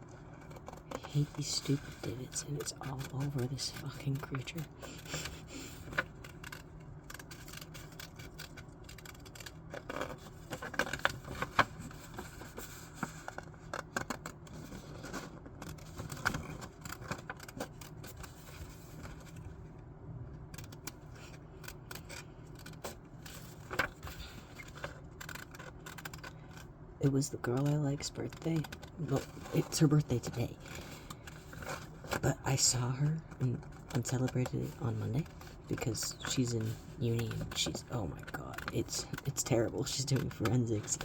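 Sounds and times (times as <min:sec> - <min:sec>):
scissors snipping paper: 0:00.5 - 0:11.6.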